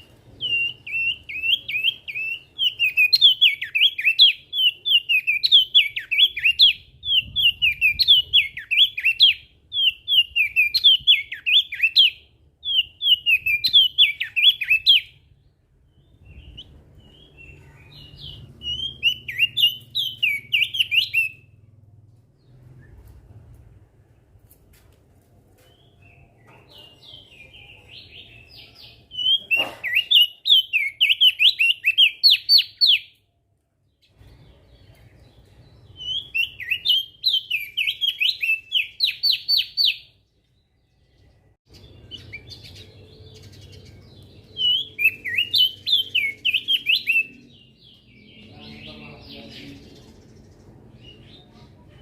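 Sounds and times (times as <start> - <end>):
soft bird chirps: 0.0 - 23.5.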